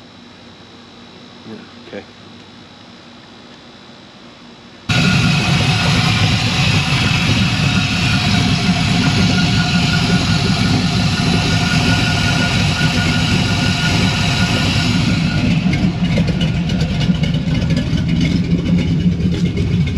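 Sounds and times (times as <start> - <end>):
car engine idling: 4.9 - 19.9.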